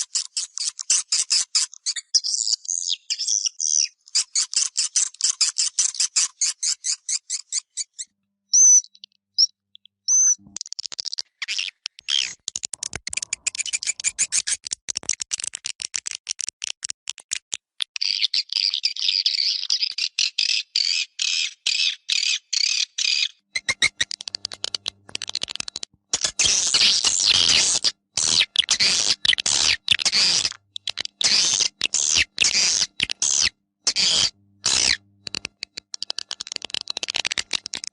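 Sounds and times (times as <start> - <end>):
buzzy twittering: 10.1 - 10.4, 26.4 - 35.0
short high whistled chirps: 10.1 - 10.4.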